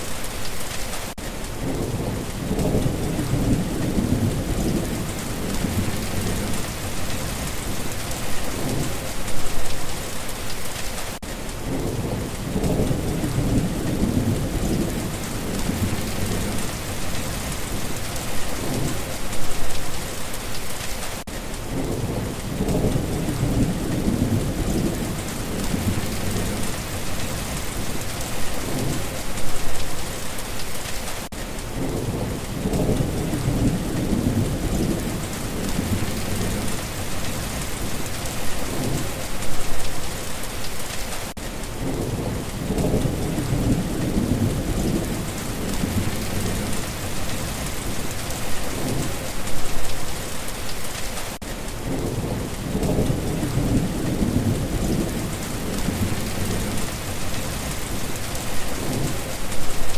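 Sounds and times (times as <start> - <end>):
steady rain: 0.0 - 59.9
low thunder rolls: 1.6 - 9.1, 11.6 - 19.6, 21.7 - 29.6, 31.7 - 39.4, 51.8 - 59.9.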